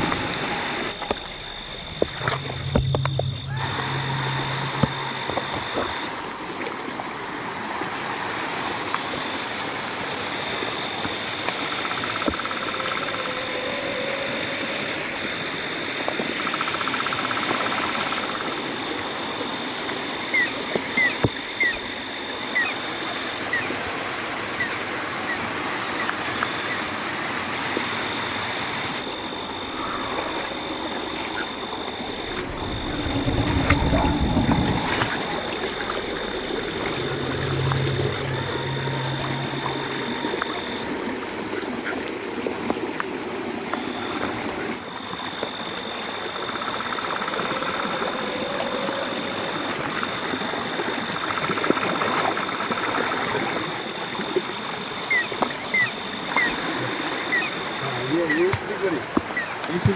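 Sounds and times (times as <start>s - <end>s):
heavy low rumble: 0.0s - 6.5s, 29.0s - 41.8s
stream water trickling: 0.0s - 59.9s
thin high-pitched tone: 0.3s - 6.3s, 29.0s - 41.1s.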